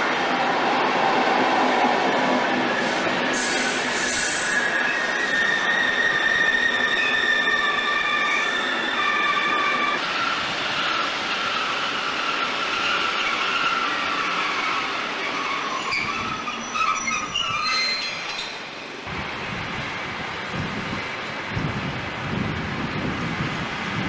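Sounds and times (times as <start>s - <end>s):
train rushing rumble: 0.0s - 24.0s
train wheel squeal: 2.7s - 18.9s.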